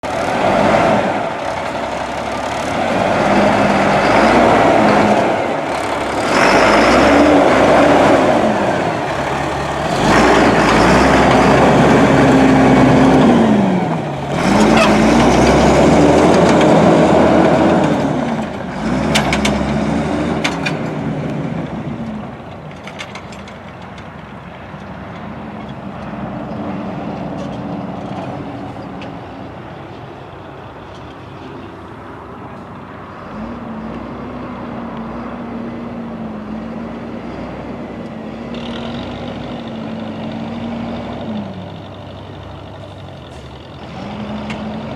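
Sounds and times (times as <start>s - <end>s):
diesel truck engine revving: 0.0s - 22.5s, 32.9s - 44.9s.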